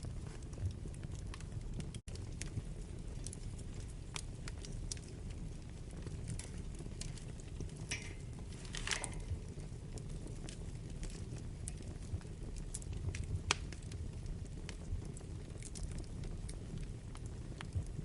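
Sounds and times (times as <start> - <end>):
fire crackles and pops: 0.0 - 18.0
low rumble of flames: 0.0 - 18.0.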